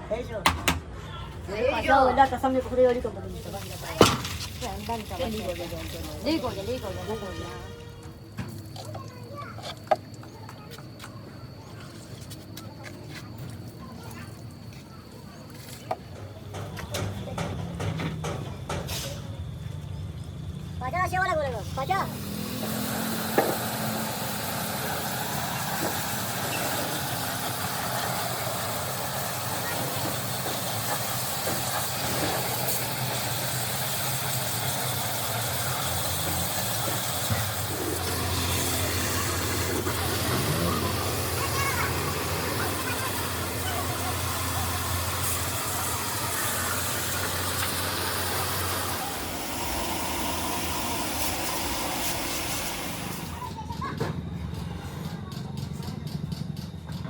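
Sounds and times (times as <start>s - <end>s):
mechanical running noise: 8.4s - 57.0s
motor drone with hiss: 21.6s - 53.6s
constant hiss: 38.2s - 53.5s
low hum: 48.4s - 53.5s.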